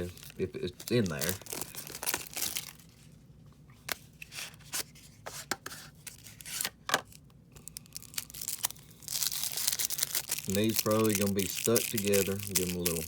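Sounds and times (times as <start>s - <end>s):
foil wrapper rustling: 0.0s - 3.1s, 6.1s - 13.0s
clicks from wrapper and cards: 6.1s - 13.0s.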